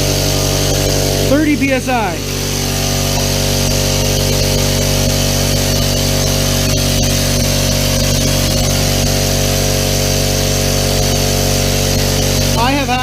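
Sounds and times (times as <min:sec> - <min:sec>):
air compressor running: 0:00.0 - 0:13.0.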